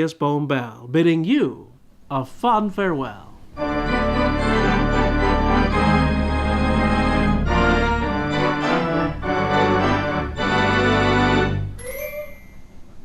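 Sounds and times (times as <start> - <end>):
organ playing chords: 3.5 - 11.8.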